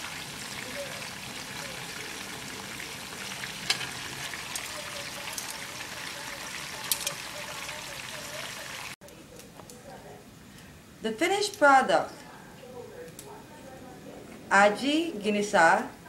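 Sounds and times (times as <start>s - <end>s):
chicken sizzling in a frying pan: 0.0s - 9.0s.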